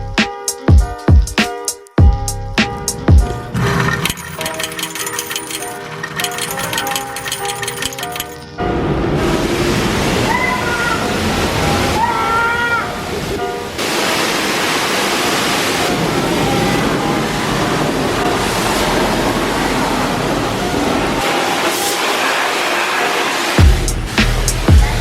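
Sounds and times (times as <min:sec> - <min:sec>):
water spraying: 0:13.0 - 0:24.7.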